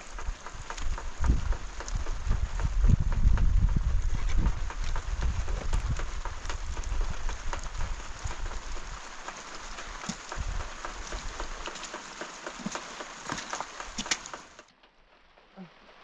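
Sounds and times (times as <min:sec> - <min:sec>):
low rumble: 0:00.0 - 0:12.8
rain falling: 0:00.0 - 0:16.0.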